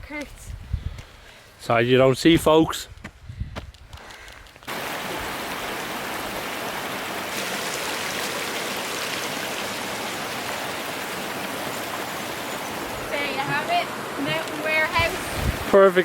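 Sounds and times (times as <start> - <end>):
flowing stream: 4.7 - 16.0.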